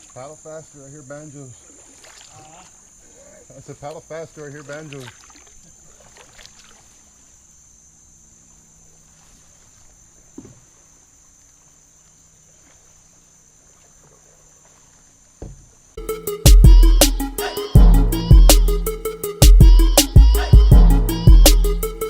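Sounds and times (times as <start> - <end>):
paddle knocking against hull: 10.3 - 10.8, 14.0 - 15.8
steady high-pitched drone: 16.0 - 22.0.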